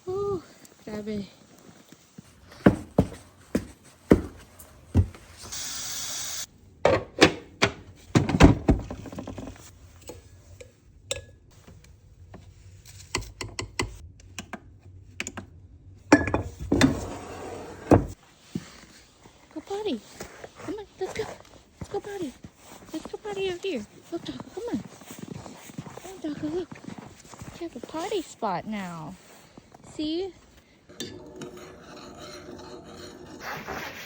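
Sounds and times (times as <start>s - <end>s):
handling knocks and clatters: 2.3s - 5.4s.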